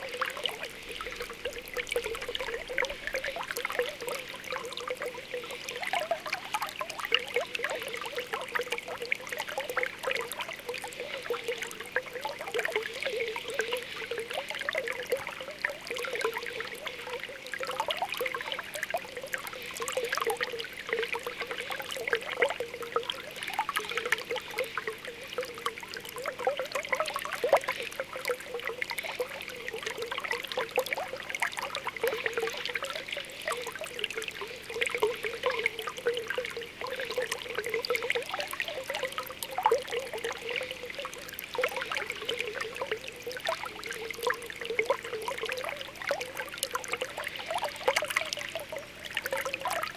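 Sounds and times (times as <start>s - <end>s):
spring water bubbling and popping: 0.0s - 49.9s
water trickling: 0.0s - 49.9s.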